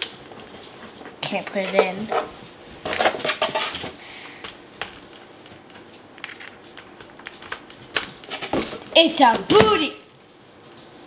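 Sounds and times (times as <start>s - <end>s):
packaging rustling: 0.0s - 10.9s
plastic gadget clattering: 0.6s - 4.0s.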